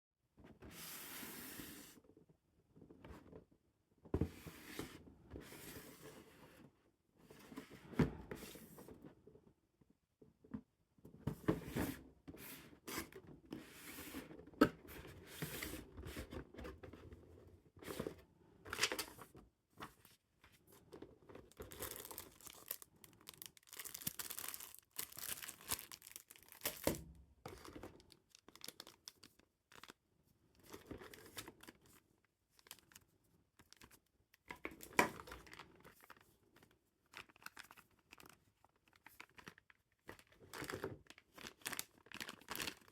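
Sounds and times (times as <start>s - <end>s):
packaging tearing and crinkling: 21.5s - 27.0s, 28.0s - 29.9s.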